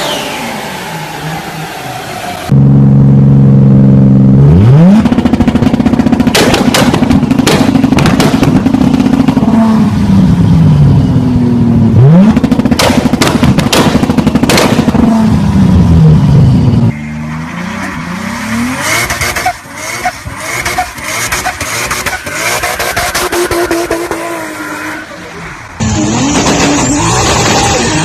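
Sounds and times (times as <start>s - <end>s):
car engine revving: 0.0s - 28.0s
exhaust cracks: 4.7s - 9.6s, 12.1s - 15.5s, 17.0s - 24.4s.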